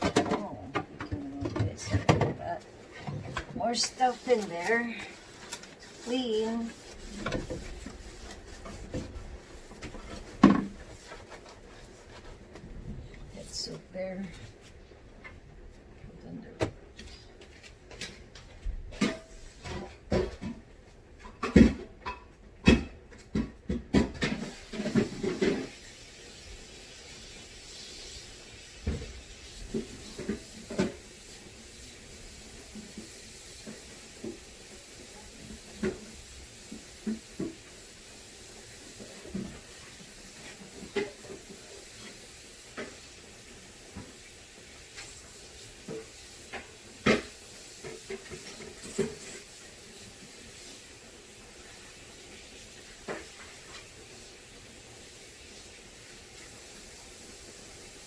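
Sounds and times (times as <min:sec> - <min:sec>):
steady hiss: 0:24.4 - 0:58.0.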